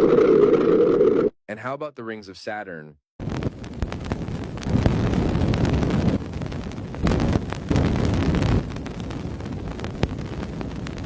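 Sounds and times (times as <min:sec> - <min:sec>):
sharp clicks and crackles: 0:03.2 - 0:11.0.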